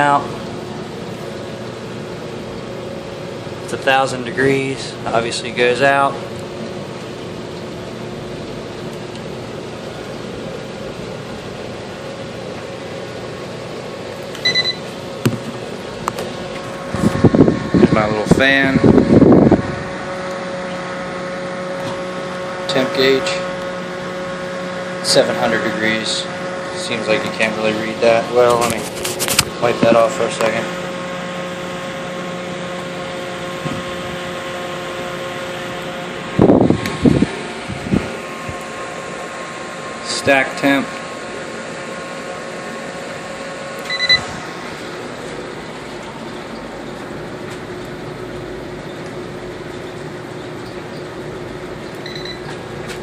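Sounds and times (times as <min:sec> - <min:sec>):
constant hum: 0:00.0 - 0:53.0
furnace burner and blower fan: 0:00.0 - 0:53.0
short electronic beep: 0:14.4 - 0:14.8, 0:43.9 - 0:44.3.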